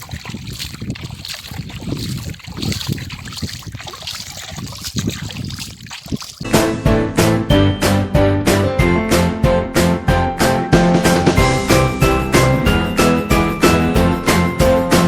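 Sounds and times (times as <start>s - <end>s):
water sloshing and splashing: 0.0s - 6.6s.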